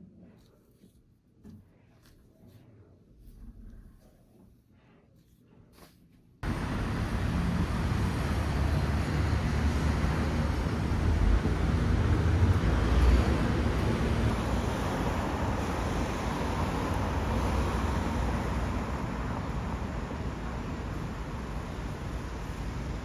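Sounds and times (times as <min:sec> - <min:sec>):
road traffic rumble: 0:06.4 - 0:23.0.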